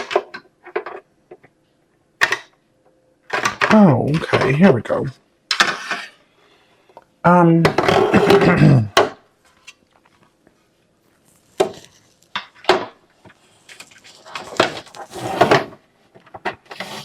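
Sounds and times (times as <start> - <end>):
hard plastic parts clattering: 0.0 - 1.5, 3.3 - 4.8, 7.6 - 9.8, 11.6 - 17.0.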